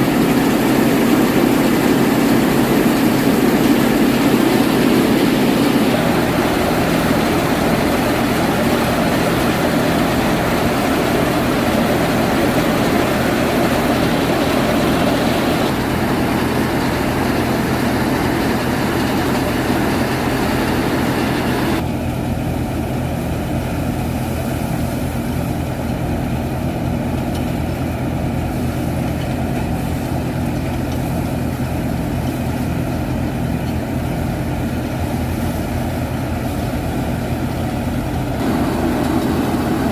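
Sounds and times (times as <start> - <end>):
thresher rushing noise: 0.0 - 21.8, 34.8 - 39.9
tractor diesel engine running: 0.0 - 39.9.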